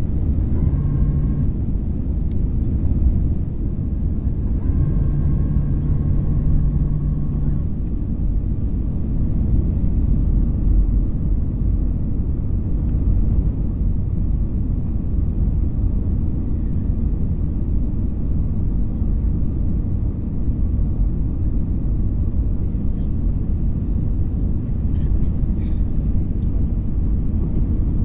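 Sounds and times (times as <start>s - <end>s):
airliner cabin engine rumble: 0.0s - 28.0s
faint high whine: 0.2s - 1.6s, 4.0s - 7.9s.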